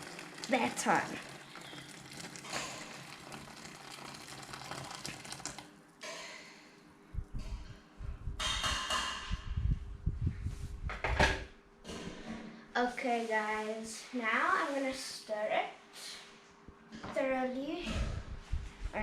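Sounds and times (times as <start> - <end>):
hot water hissing: 0.0 - 5.7
low knocks and handling noise: 7.2 - 12.5.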